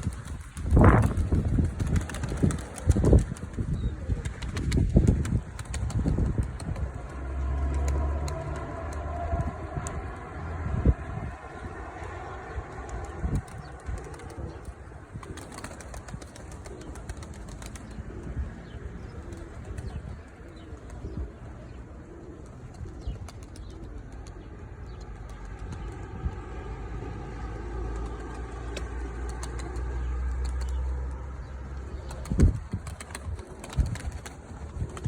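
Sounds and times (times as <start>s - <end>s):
pigeon wing flaps and claps: 0.0s - 10.3s, 12.7s - 18.3s, 25.0s - 26.0s, 28.0s - 30.8s, 31.9s - 35.0s
wind buffeting microphone: 0.0s - 26.7s, 28.0s - 35.0s.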